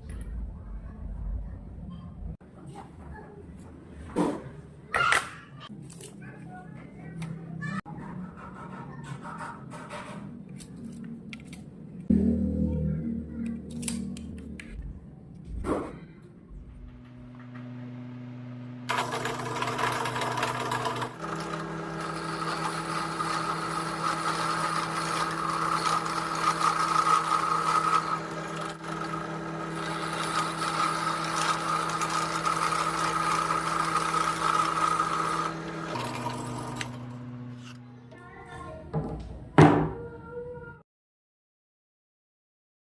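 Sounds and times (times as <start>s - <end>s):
power tool motor running: 18.8s - 37.8s.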